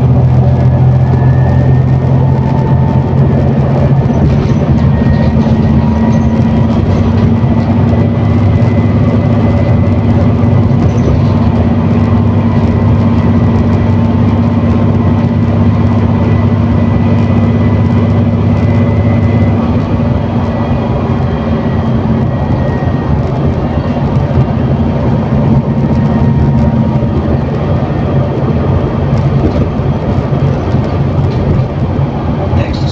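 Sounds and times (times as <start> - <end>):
bus engine drone: 0.0 - 32.9.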